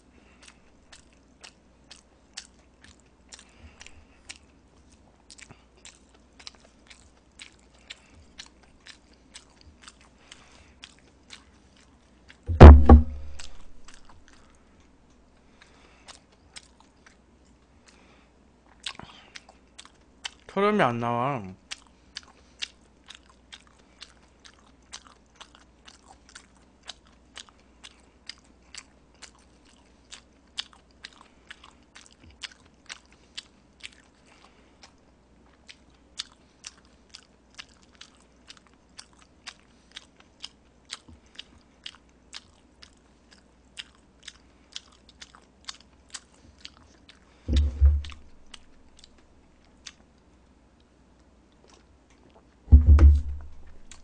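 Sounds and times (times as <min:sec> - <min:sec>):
wet chewing clicks: 0:00.0 - 0:20.5, 0:21.6 - 0:54.0
loud low thump: 0:12.5 - 0:14.0, 0:47.5 - 0:48.7, 0:52.7 - 0:54.0.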